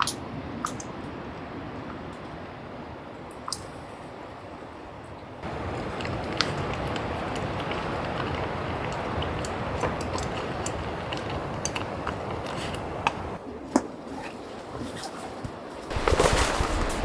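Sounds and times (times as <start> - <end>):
rain pattering on tent fabric: 5.4 - 13.4, 14.4 - 17.0.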